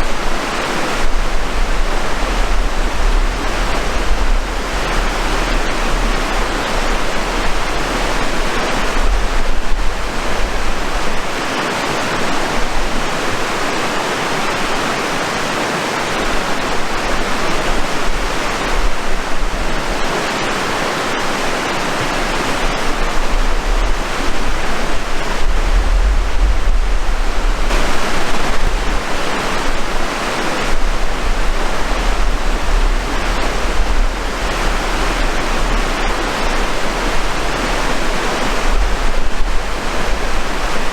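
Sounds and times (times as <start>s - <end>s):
low rumble: 0.0s - 11.4s, 22.1s - 40.9s
water rushing: 0.0s - 40.9s.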